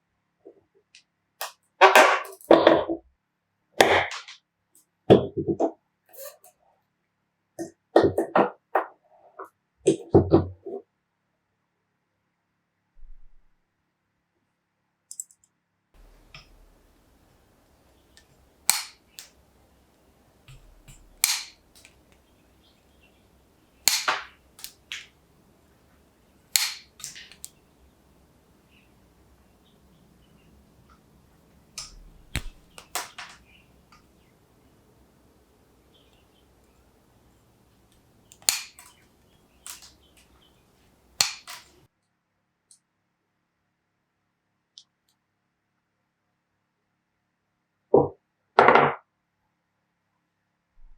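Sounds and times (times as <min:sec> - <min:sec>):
weaker clicks: 0:15.1 - 0:25.2, 0:25.9 - 0:27.7, 0:31.7 - 0:34.3, 0:37.8 - 0:41.9
pincers snapping: 0:16.0 - 0:23.1, 0:23.8 - 0:25.2, 0:26.4 - 0:27.6, 0:31.7 - 0:34.2, 0:37.8 - 0:40.4, 0:41.1 - 0:41.8.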